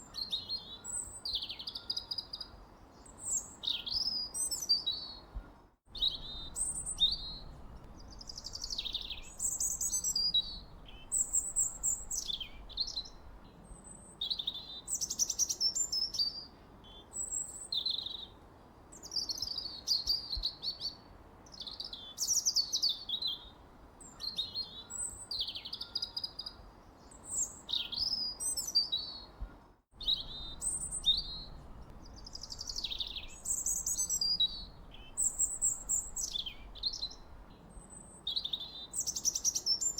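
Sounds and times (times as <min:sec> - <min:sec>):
faint low background noise: 0:00.0 - 0:39.9
bird chirping and whistling: 0:30.0 - 0:31.6, 0:32.2 - 0:37.2.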